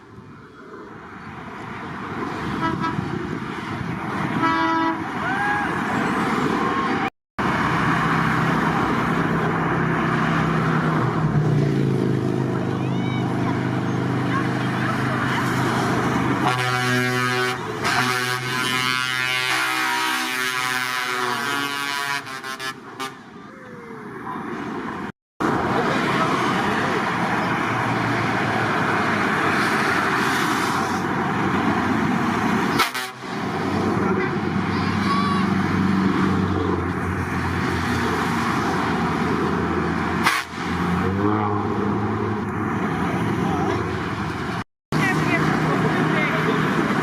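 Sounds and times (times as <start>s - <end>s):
truck diesel engines running: 0.0s - 47.0s
truck air horn: 2.5s - 3.2s, 4.4s - 5.1s, 16.4s - 23.4s, 32.7s - 33.4s, 40.2s - 42.0s.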